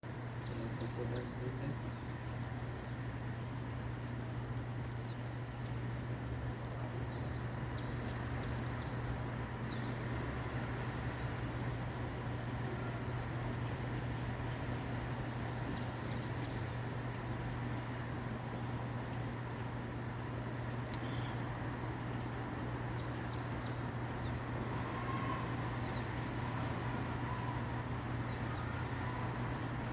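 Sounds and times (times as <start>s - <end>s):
small bird singing: 0.0s - 2.1s, 4.9s - 10.0s, 14.7s - 16.8s, 21.0s - 29.9s.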